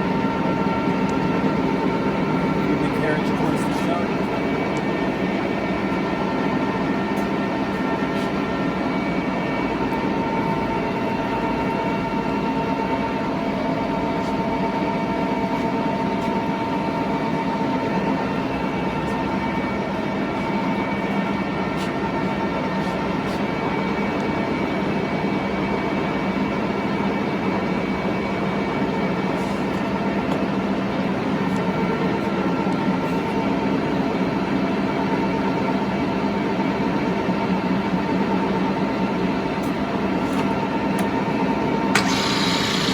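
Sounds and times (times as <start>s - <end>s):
lathe mechanical hum: 40.8s - 42.9s
whining gear tones: 42.0s - 42.9s.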